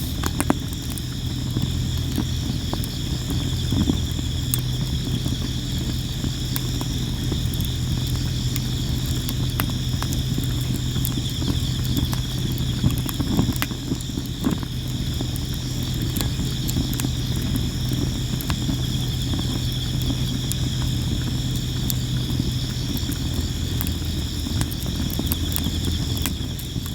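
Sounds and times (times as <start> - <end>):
campfire crackling and popping: 0.0 - 26.9
flames low rumble: 0.0 - 26.9
insects chirping: 0.0 - 26.9.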